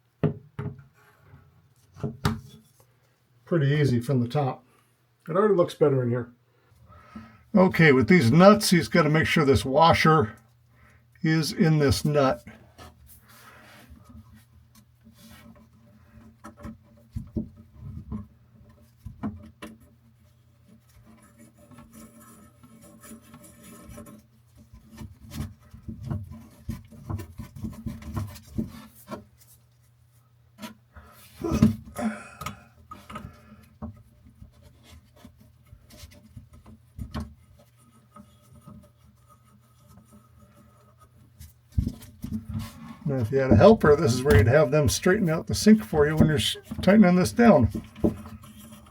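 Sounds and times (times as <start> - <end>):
hands rubbing and scraping parts: 11.3 - 48.9.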